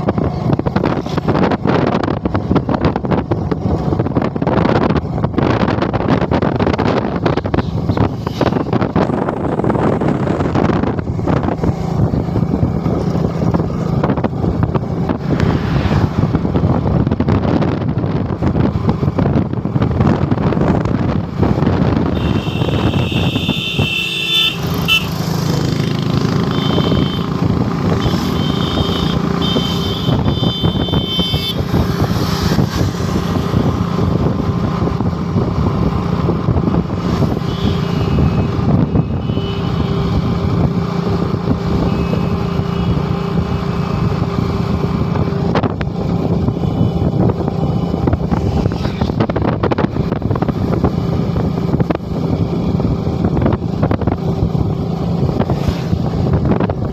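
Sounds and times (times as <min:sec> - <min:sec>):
motorcycle engine running: 0:16.2 - 0:56.9.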